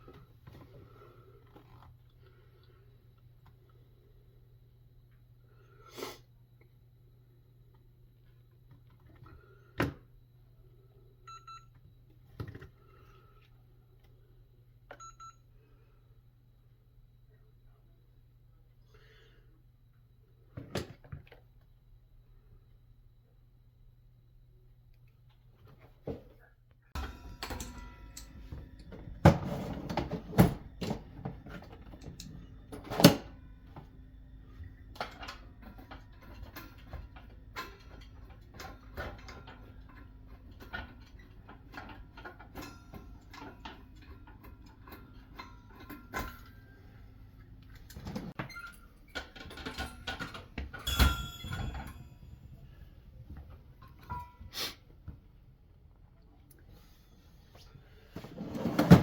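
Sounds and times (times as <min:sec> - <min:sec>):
low steady hum: 0:26.5 - 0:59.0
knocks and clatter of refrigerator parts: 0:27.0 - 0:46.8, 0:47.7 - 0:54.4, 0:58.1 - 0:59.0.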